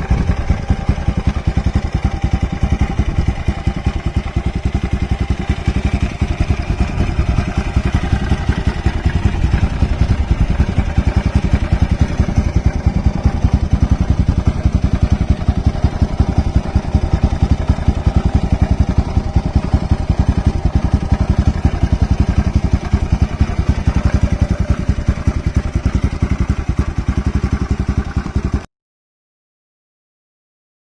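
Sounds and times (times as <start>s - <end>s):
loud motorcycle exhaust: 0.0s - 28.6s.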